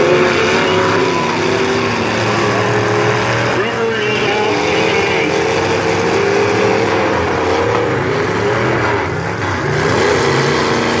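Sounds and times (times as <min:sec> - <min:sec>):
car engines revving loudly: 0:00.0 - 0:11.0.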